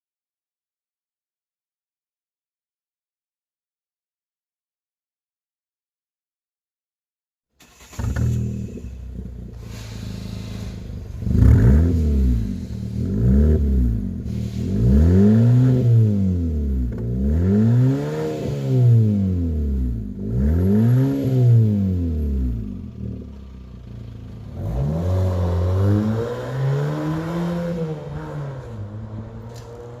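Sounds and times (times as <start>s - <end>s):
loud car engine revving: 7.8s - 30.0s.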